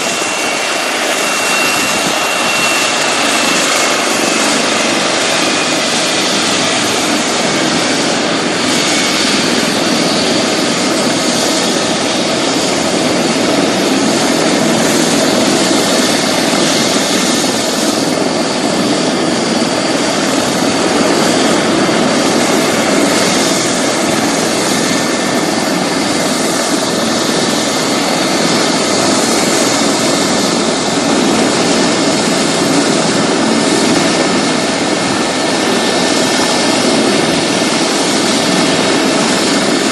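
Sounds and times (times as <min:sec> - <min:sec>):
helicopter turbine and rotor: 0:00.0 - 0:39.9.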